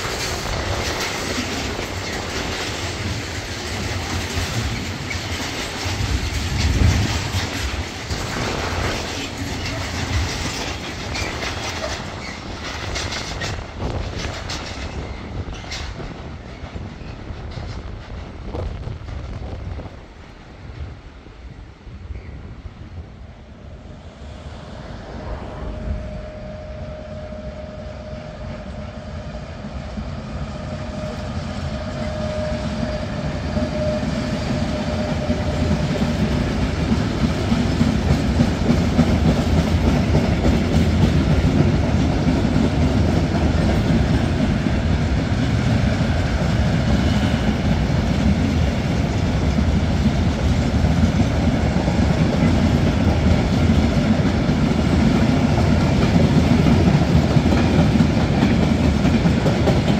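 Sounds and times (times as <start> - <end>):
freight train rolling past: 0.0 - 59.9
steady whine: 21.4 - 35.7.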